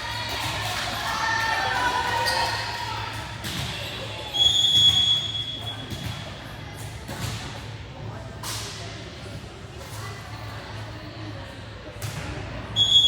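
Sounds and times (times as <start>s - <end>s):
thumps in echoing gym: 0.0s - 10.2s, 11.8s - 12.8s
referee's whistle blast: 12.8s - 13.0s.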